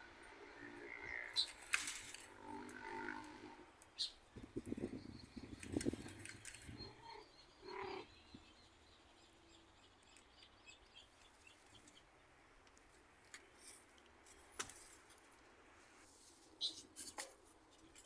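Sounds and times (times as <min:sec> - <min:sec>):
faint bird calls and chirps: 0:00.0 - 0:03.2, 0:03.8 - 0:12.4, 0:16.5 - 0:18.0.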